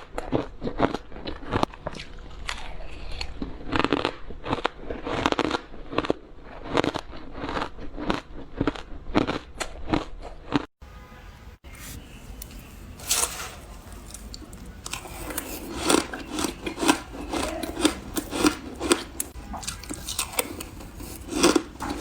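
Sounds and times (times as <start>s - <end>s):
crunching bites of frozen ice: 12.3s - 22.0s.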